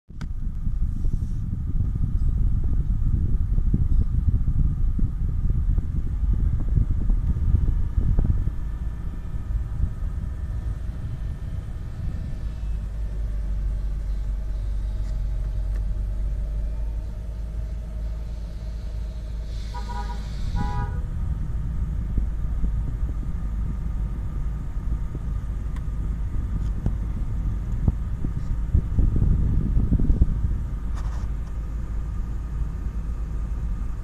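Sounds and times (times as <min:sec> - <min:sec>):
car engine idling: 0:00.1 - 0:34.0
vehicle horn toots: 0:19.6 - 0:21.2.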